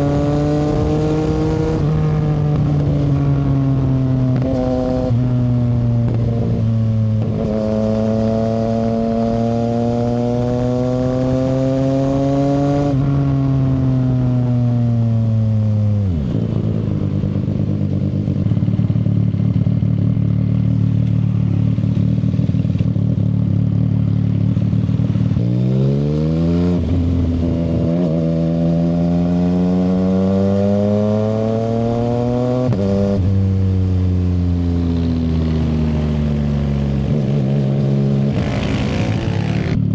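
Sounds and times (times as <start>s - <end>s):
motorcycle engine revving: 0.0s - 14.3s, 34.8s - 39.9s.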